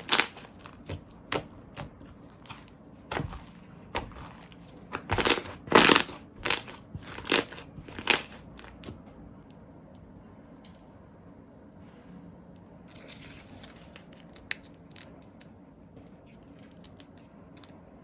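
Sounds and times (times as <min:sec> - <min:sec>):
slime crackling pops: 0:00.0 - 0:09.0.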